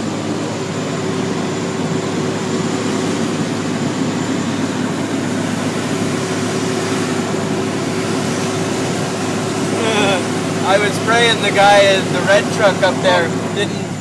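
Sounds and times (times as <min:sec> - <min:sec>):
truck diesel engine droning: 0:00.0 - 0:14.0.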